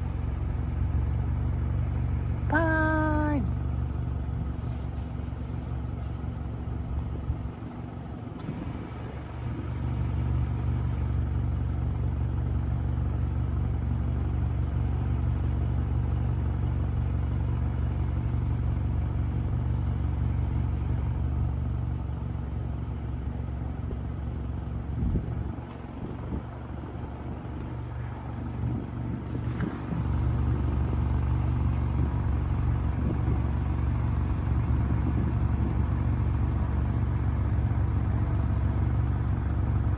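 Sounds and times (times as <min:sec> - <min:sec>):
airplane engine drone: 0:25.0 - 0:33.8.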